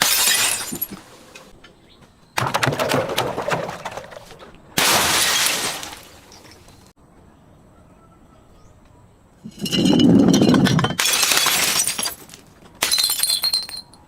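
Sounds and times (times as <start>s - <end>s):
glass breaking: 0.0s - 1.0s, 4.8s - 6.7s, 9.6s - 13.8s
glass shattering crash: 0.0s - 1.0s, 4.8s - 6.7s, 9.6s - 13.8s
small glass cracks and clinks: 9.6s - 14.0s.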